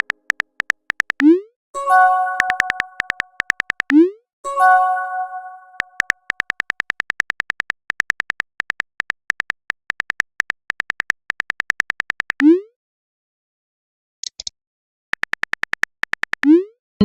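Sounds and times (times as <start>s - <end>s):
electronic typing beeps: 0.0s - 1.4s, 2.2s - 4.0s, 5.7s - 12.6s.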